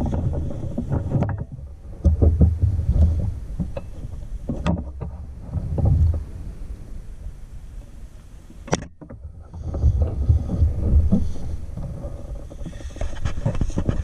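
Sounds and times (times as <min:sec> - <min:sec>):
wind on moving motorcycle: 0:00.0 - 0:14.0
motorcycle engine rumble: 0:01.4 - 0:12.4.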